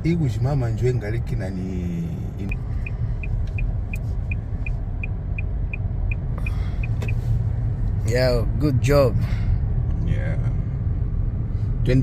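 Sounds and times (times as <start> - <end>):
engine and road rumble: 0.0 - 12.0
turn signal ticking: 2.4 - 8.0.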